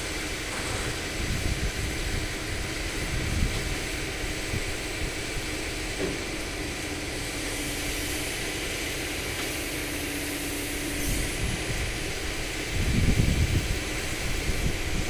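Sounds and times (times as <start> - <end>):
excavator diesel engine running: 0.0 - 15.0
steady whine: 0.0 - 15.0.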